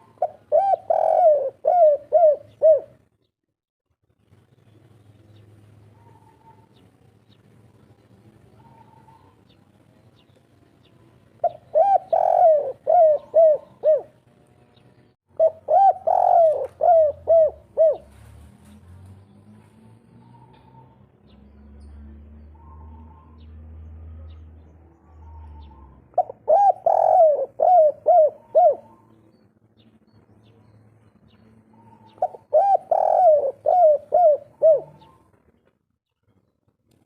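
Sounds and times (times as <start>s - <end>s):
dove cooing: 0.0s - 3.0s, 8.6s - 9.4s, 11.4s - 14.2s, 15.4s - 18.3s, 25.0s - 29.2s, 31.7s - 35.4s.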